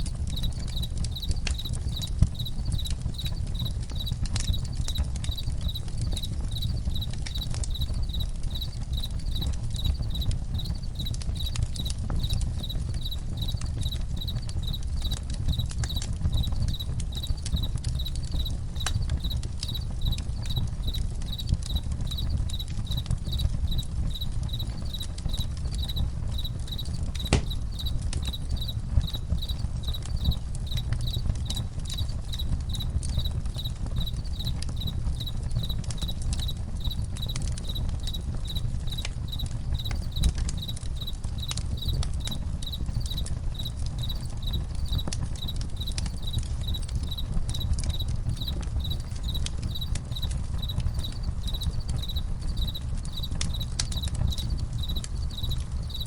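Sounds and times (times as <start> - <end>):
campfire crackling and popping: 0.0 - 56.0
crickets chirping: 0.0 - 56.0.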